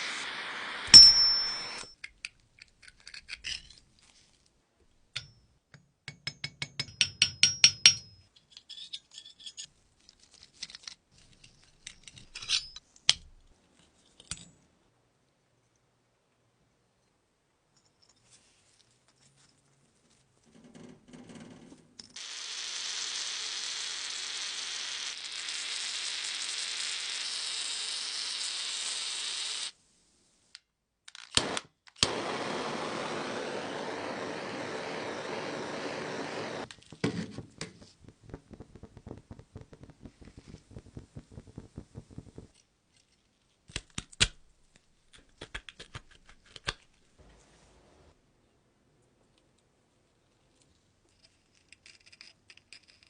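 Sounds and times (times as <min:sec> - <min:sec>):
small power tool running: 0:22.2 - 0:29.7, 0:32.0 - 0:36.7.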